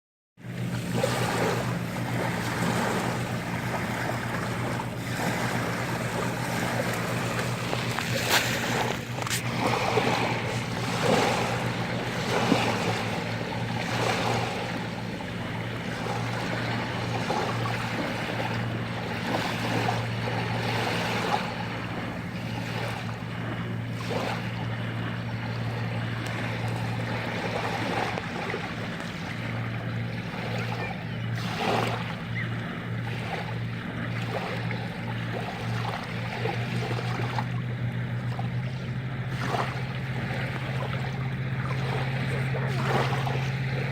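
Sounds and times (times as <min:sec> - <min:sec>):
steady low hum: 0:00.4 - 0:43.9
sea waves washing over rocks: 0:00.6 - 0:23.3, 0:39.3 - 0:43.9.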